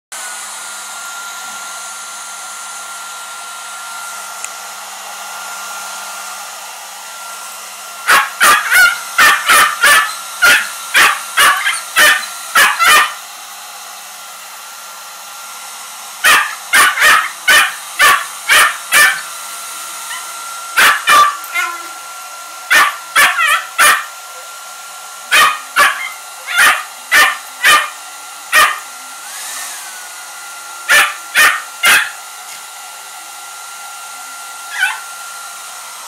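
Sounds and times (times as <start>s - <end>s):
hair dryer blowing: 0.1s - 36.0s
dog barking: 8.0s - 13.2s, 16.2s - 19.3s, 20.1s - 21.9s, 22.7s - 24.1s, 25.3s - 28.9s, 30.9s - 32.2s, 34.7s - 35.0s.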